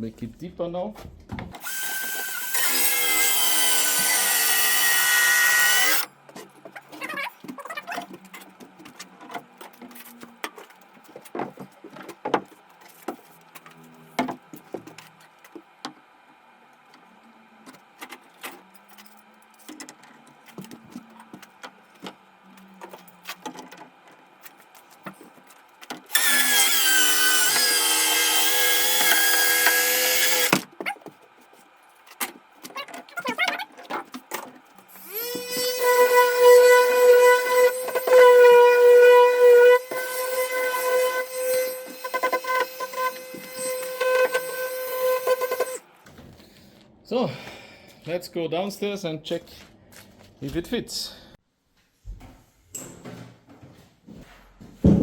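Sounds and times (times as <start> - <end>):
circular saw cutting wood: 1.6 - 6.1, 26.1 - 30.6, 34.9 - 45.8.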